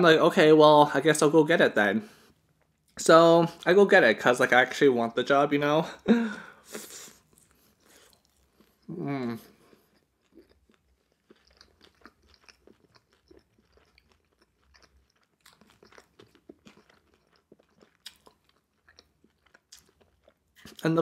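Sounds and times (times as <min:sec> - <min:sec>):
faint chewing: 0:06.4 - 0:21.0.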